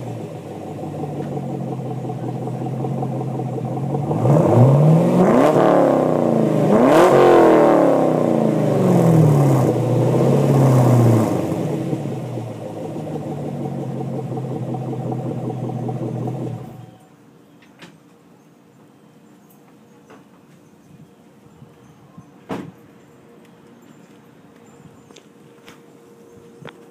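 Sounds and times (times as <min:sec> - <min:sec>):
car engine revving and idling: 0:00.0 - 0:17.0.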